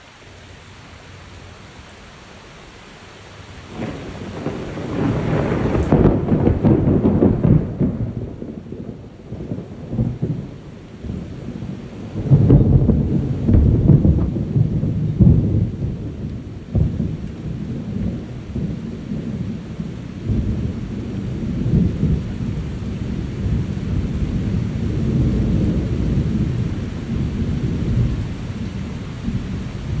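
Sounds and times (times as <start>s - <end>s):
steady rain: 0.0s - 30.0s
rolling thunder: 3.7s - 30.0s
sharp thunder crack: 3.7s - 30.0s.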